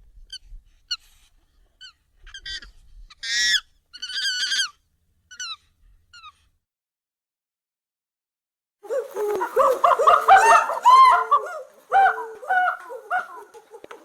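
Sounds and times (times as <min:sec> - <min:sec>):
monkey chirps and screeches: 0:01.8 - 0:06.4.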